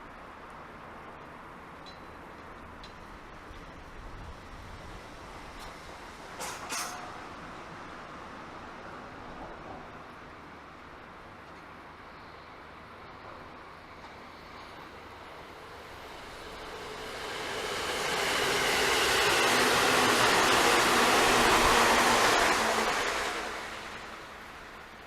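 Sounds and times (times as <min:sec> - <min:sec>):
wheels rumbling on rail: 0:00.3 - 0:25.0
electric train passing: 0:12.4 - 0:25.0.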